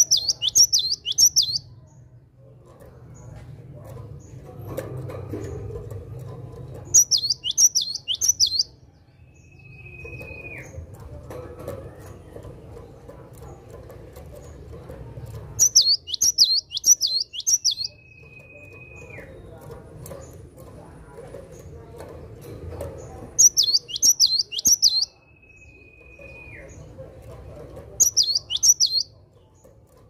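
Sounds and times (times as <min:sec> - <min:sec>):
bird whistling: 0:00.0 - 0:01.6, 0:07.0 - 0:08.7, 0:15.6 - 0:19.2, 0:23.4 - 0:26.6, 0:28.0 - 0:29.1
bird singing high notes: 0:15.6 - 0:18.4.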